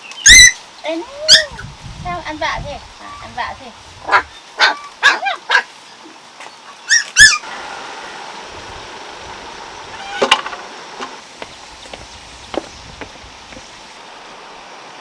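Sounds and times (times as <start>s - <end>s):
steady hiss: 0.0s - 4.6s, 7.4s - 15.0s
dog whimpering and yelping: 0.3s - 1.6s, 6.9s - 7.4s.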